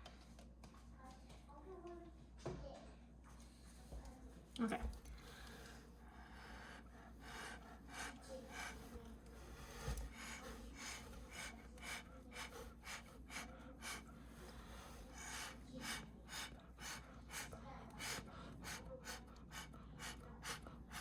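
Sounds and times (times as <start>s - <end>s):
person breathing out in puffs: 5.2s - 21.0s.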